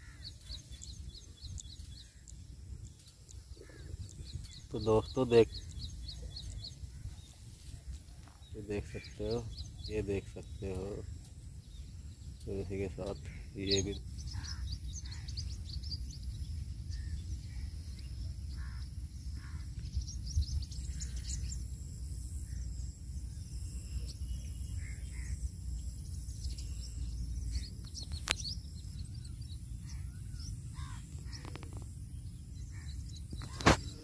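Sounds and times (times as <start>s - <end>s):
small birds chirping: 0.0s - 34.0s
sharp click: 33.4s - 34.0s.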